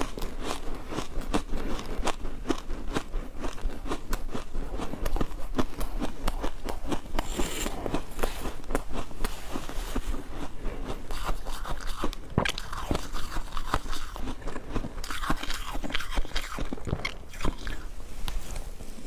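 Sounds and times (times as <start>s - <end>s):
ice crunching between teeth: 0.0s - 18.4s.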